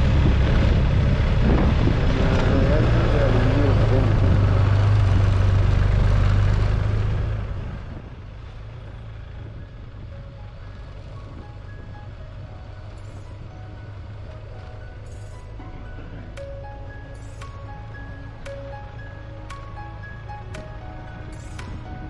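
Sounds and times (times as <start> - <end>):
motorcycle engine and wind drone: 0.0 - 22.0
faint musical notes: 10.0 - 22.0.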